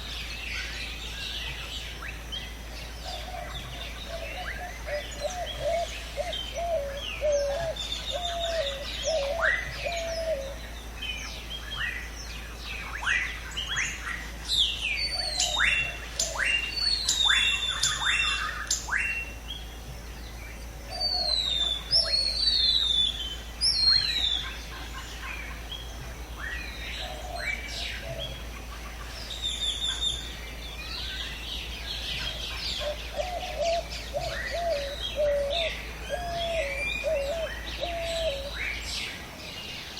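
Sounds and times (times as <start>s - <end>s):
birds whistling and chirping: 0.0s - 39.9s
low wavering bird call: 32.2s - 38.8s.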